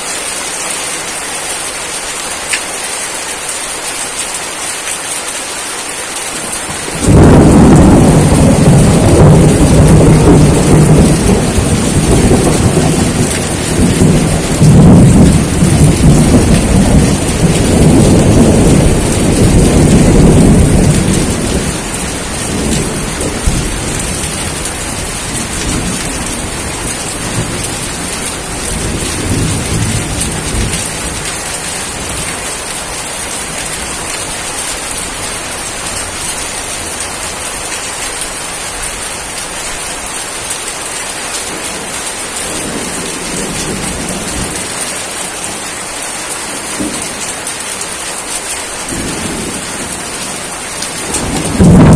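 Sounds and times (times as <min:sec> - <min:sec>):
heavy rain hissing: 0:00.0 - 0:51.9
thunder rumbling: 0:06.6 - 0:37.7, 0:48.8 - 0:51.9.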